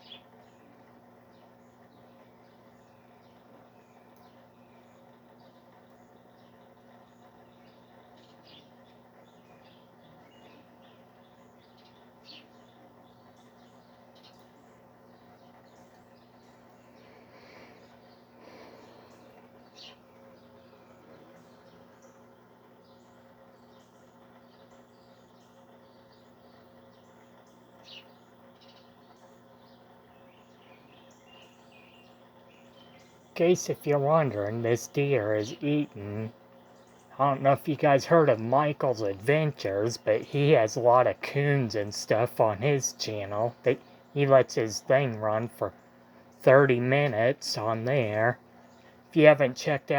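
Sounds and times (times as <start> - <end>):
faint birds chirping: 0.0 - 49.9
steady low hum: 0.0 - 49.9.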